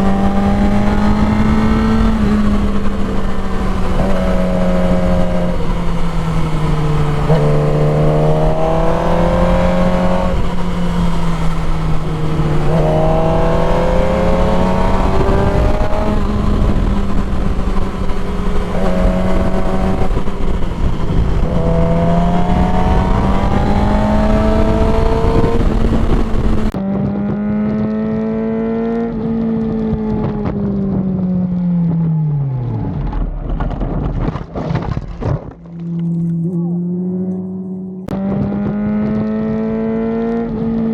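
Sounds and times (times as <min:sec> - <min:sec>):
wind rushing: 0:00.0 - 0:26.8
motorcycle engine accelerating: 0:00.0 - 0:40.9.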